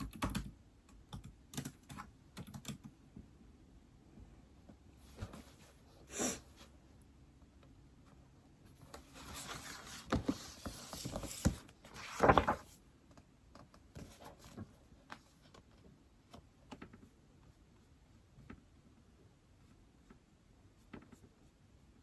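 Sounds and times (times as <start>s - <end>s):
rustling and handling noise: 4.6s - 6.8s, 8.0s - 18.8s.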